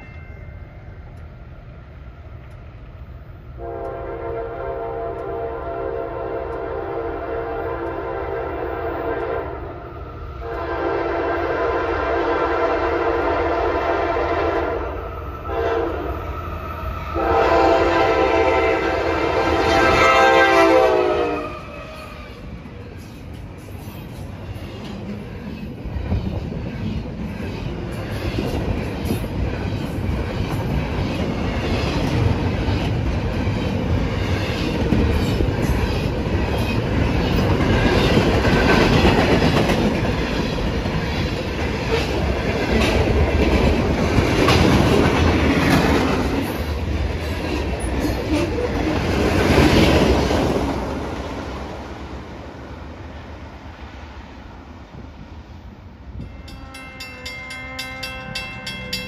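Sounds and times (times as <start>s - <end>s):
train wheels clicking over rail joints: 22.5s - 51.2s.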